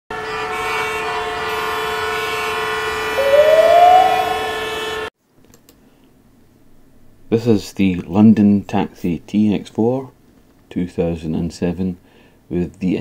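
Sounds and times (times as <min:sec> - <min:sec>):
rising siren-like tone: 0:03.2 - 0:05.1.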